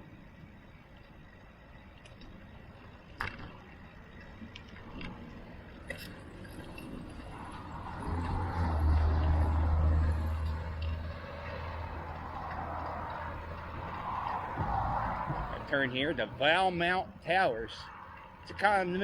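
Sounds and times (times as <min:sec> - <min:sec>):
road traffic: 0:00.0 - 0:19.0
low rumble: 0:06.4 - 0:17.0.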